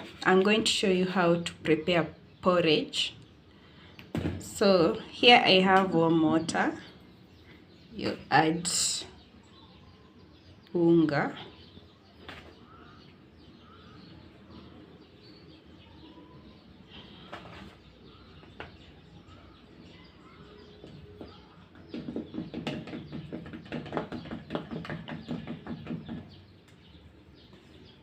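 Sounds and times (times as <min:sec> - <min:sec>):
faint bird chirps: 0:09.0 - 0:23.3
rapid knocks and scrapes: 0:20.8 - 0:26.4.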